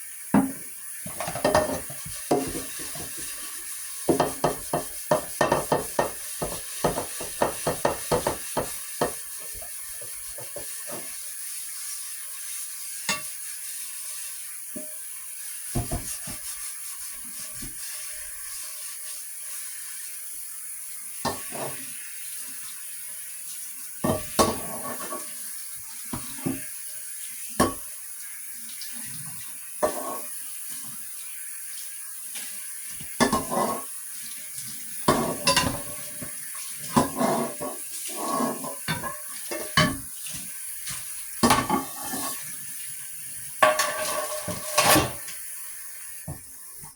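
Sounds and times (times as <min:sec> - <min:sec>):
dishes and pots clinking: 0:00.4 - 0:03.4, 0:04.1 - 0:11.1, 0:13.1 - 0:13.3, 0:15.7 - 0:16.4, 0:21.2 - 0:21.8, 0:24.0 - 0:25.3, 0:27.6 - 0:27.9, 0:29.8 - 0:30.3, 0:33.1 - 0:33.9, 0:35.1 - 0:40.1, 0:41.4 - 0:42.4, 0:43.6 - 0:45.4.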